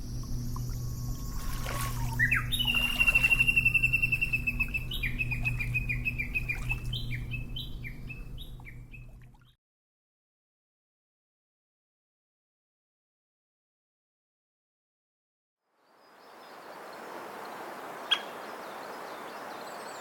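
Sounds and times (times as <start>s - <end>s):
steady low hum: 0.0s - 9.4s
bird calling: 1.2s - 9.2s, 16.7s - 20.0s.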